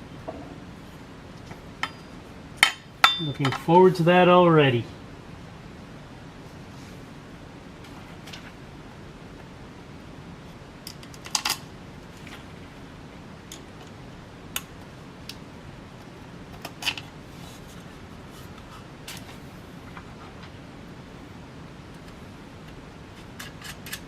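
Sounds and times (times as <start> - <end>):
clicks and clinks of fan hardware: 1.4 - 3.8, 10.8 - 11.7, 13.5 - 15.4, 22.0 - 24.0.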